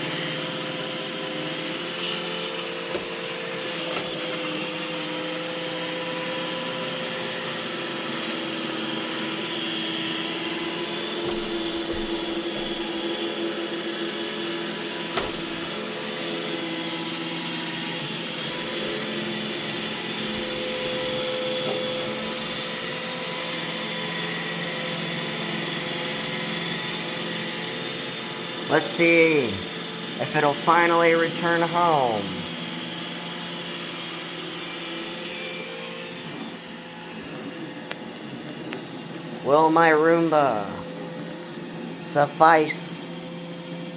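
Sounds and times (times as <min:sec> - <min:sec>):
robot vacuum running: 0:00.0 - 0:28.7
vacuum click: 0:15.1 - 0:15.6.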